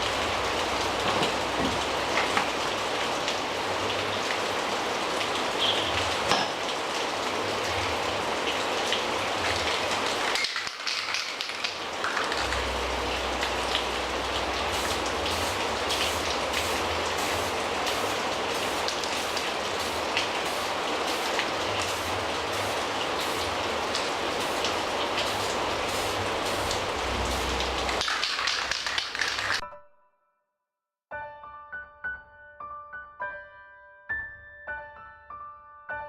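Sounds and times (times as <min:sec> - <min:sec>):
aerosol spray can hissing: 0:14.8 - 0:23.5, 0:25.2 - 0:29.6.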